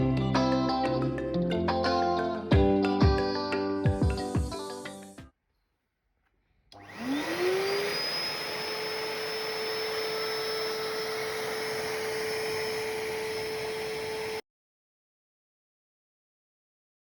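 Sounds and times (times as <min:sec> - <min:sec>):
vacuum cleaner motor running: 0:06.8 - 0:14.4.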